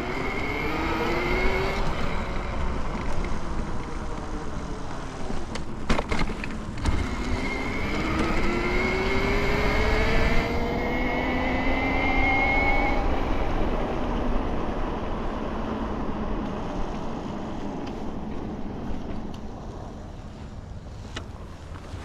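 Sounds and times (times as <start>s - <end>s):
wind and riding noise: 0.0s - 22.0s
electric bike motor whining: 6.7s - 13.6s.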